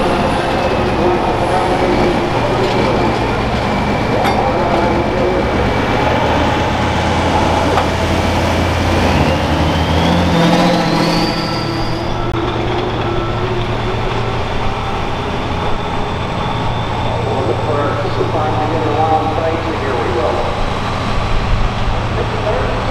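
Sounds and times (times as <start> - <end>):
diesel engine under load: 0.0 - 22.9
high turbo whine: 0.0 - 22.9.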